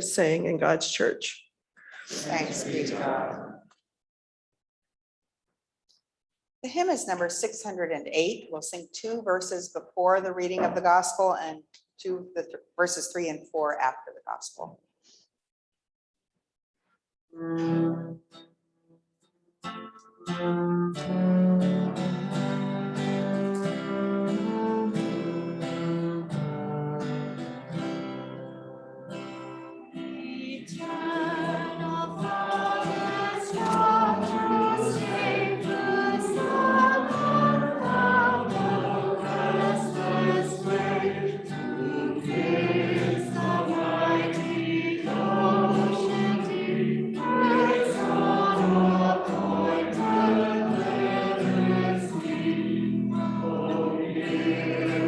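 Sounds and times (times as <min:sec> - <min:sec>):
acoustic guitar: 0:02.0 - 0:03.6, 0:09.4 - 0:11.4, 0:17.3 - 0:55.0
congregation singing a hymn: 0:02.1 - 0:03.6, 0:30.1 - 0:55.0.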